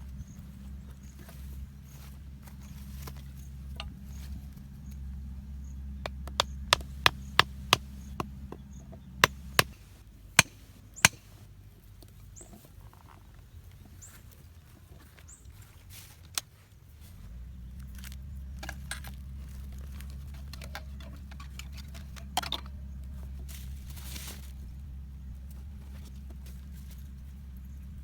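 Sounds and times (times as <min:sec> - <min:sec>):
low steady hum: 0:00.0 - 0:28.0
sharp knocks: 0:10.4 - 0:11.3.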